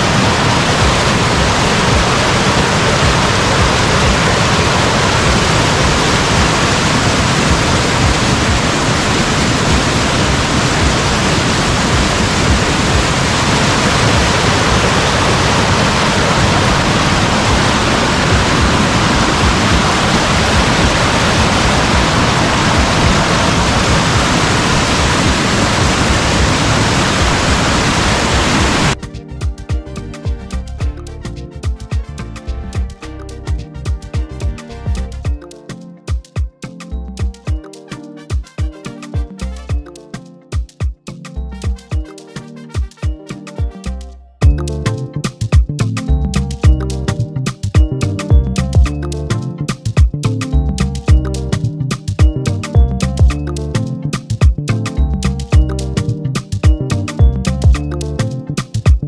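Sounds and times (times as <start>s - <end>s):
music with a beat: 0.0s - 24.5s, 28.9s - 59.0s
river rushing: 0.0s - 29.0s.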